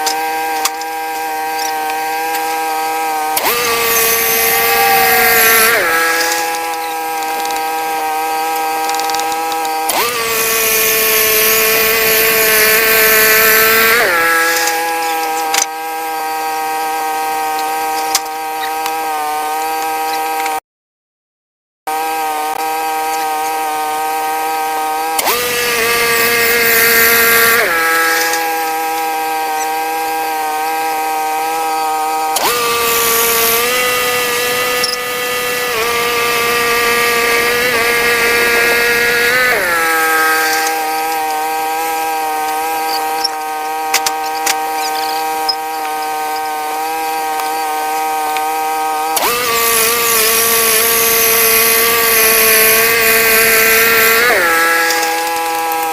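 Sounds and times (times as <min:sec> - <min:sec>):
saw cutting hiss: 0:00.0 - 0:08.8, 0:25.0 - 0:55.9
band sawmill whine: 0:01.2 - 0:08.1, 0:31.6 - 0:45.2.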